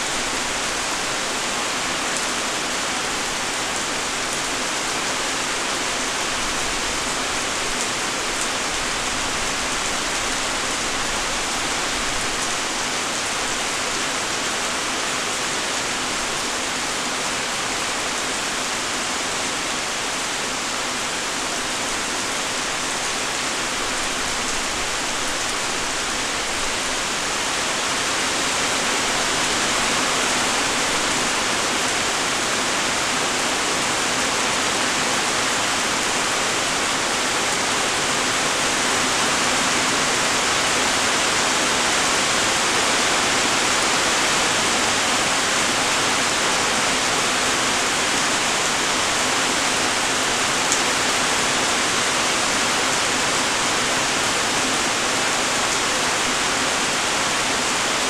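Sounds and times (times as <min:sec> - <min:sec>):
light rain falling: 0:00.0 - 0:58.0.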